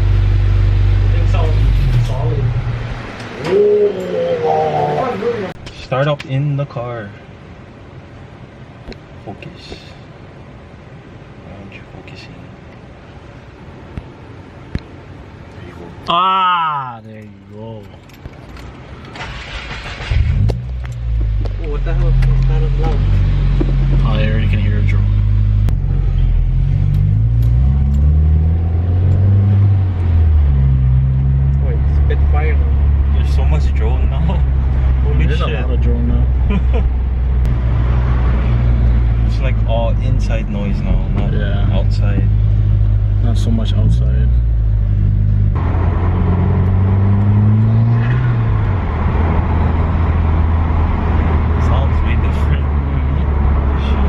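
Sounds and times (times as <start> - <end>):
car exhaust drone: 0.0 - 5.3, 19.4 - 54.0.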